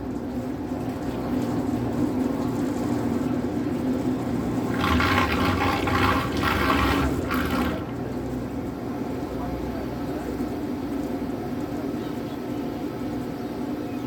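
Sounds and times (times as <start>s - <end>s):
water rushing and splashing: 4.5s - 8.0s.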